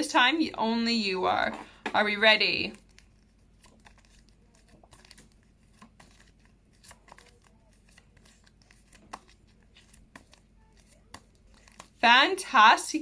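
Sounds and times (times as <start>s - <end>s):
paper cards rustling: 2.6s - 12.0s.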